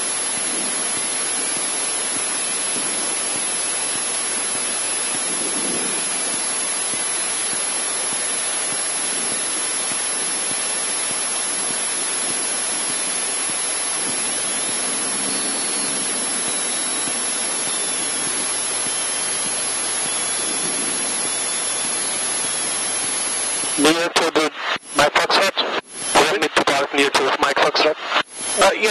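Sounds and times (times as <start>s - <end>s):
aircraft cabin hiss: 21.9s - 28.9s.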